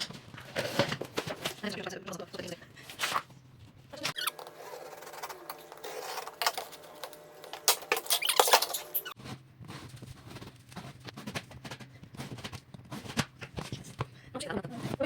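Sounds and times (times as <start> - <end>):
cardboard squeaky scraping: 4.0 - 6.9, 7.9 - 15.0.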